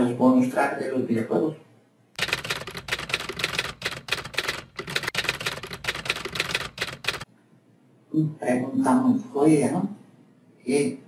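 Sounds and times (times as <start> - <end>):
typewriter typing: 2.2 - 7.3.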